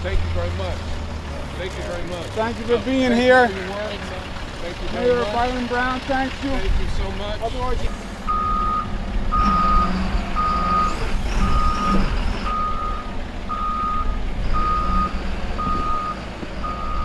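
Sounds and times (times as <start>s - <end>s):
engine rumbling: 0.0s - 17.0s
vehicle reversing alarm beeping: 7.9s - 17.0s.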